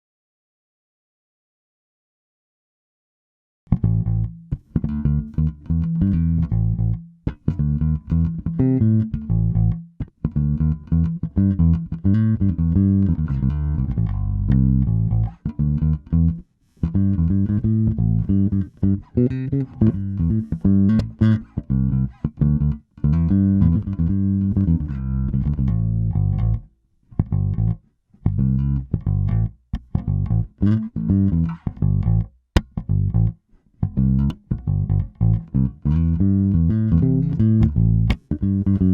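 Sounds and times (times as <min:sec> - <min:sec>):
electric bass plucked and slapped: 0:03.7 - 0:38.9.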